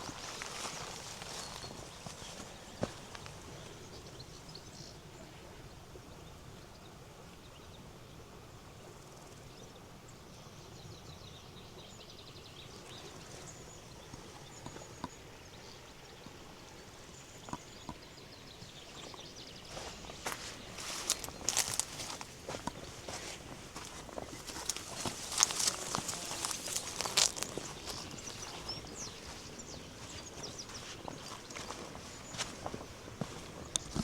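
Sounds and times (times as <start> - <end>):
small birds chirping: 0.0 - 34.0
river flowing: 19.5 - 34.0.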